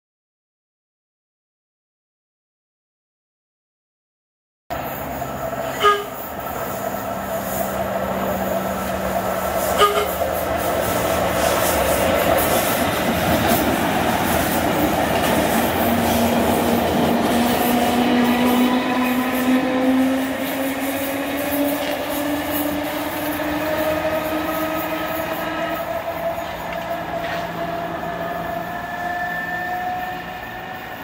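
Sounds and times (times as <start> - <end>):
train wheels rumbling on rails: 4.7 - 31.0
train horn toots: 5.6 - 6.4, 8.6 - 10.5, 17.3 - 31.0.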